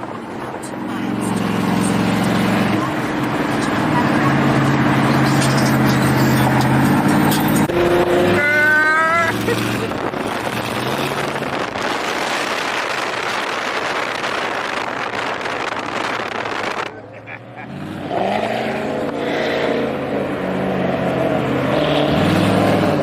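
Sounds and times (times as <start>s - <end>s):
car engines droning: 0.0s - 23.0s
traffic rumble: 0.0s - 23.0s.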